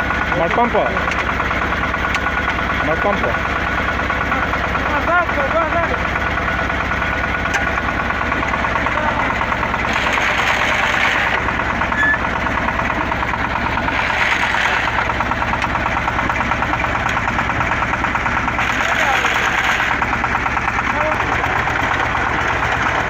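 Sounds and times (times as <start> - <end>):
drilling rig engine knocking: 0.0 - 23.0.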